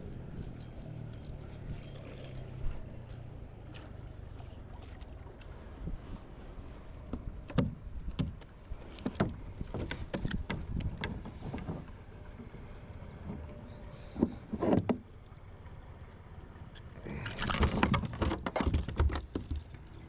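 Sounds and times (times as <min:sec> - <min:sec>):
gear knocking against kayak hull: 0:07.1 - 0:11.9, 0:17.2 - 0:20.0.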